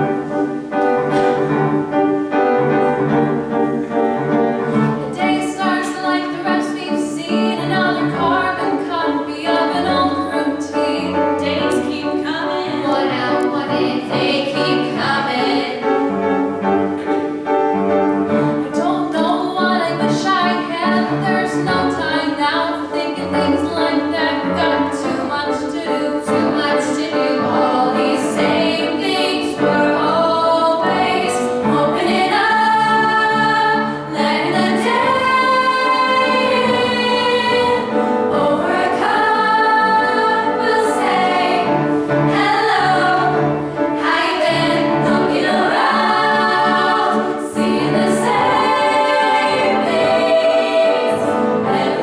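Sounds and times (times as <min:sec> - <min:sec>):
instrumental accompaniment: 0:00.0 - 0:06.4, 0:23.7 - 0:52.0
group of voices singing: 0:04.6 - 0:16.1, 0:18.3 - 0:52.0.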